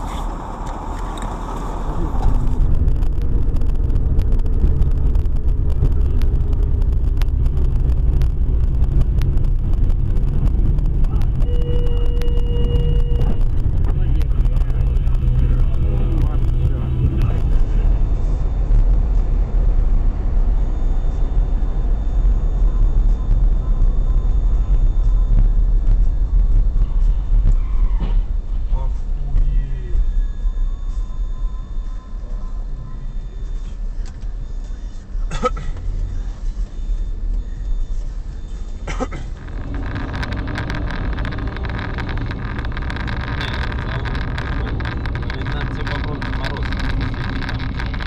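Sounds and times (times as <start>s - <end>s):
car engine and road noise: 0.0s - 48.0s
small clicks and rattles: 39.3s - 48.0s.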